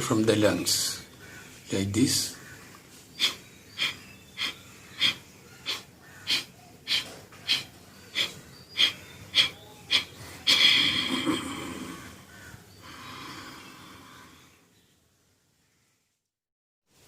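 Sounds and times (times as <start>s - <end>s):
forceful nasal exhalations: 3.1s - 14.6s.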